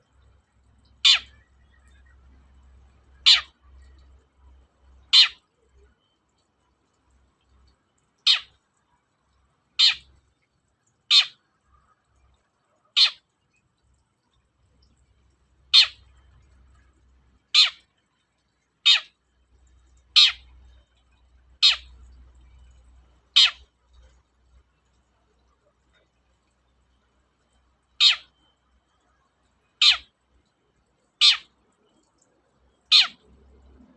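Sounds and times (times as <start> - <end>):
bird harsh calls: 1.0 - 1.5, 3.2 - 3.6, 5.1 - 5.4, 8.3 - 8.5, 9.8 - 10.0, 11.1 - 11.4, 13.0 - 13.2, 15.7 - 16.0, 17.6 - 17.8, 18.9 - 19.1, 20.2 - 20.5, 21.6 - 22.0, 23.4 - 23.6, 28.0 - 28.3, 29.8 - 30.1, 31.2 - 31.5, 32.9 - 33.2.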